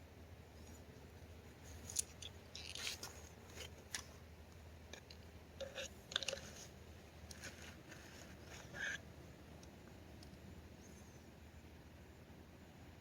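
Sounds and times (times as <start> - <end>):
rustling crackling and scraping: 0.5 - 4.3, 4.9 - 10.0.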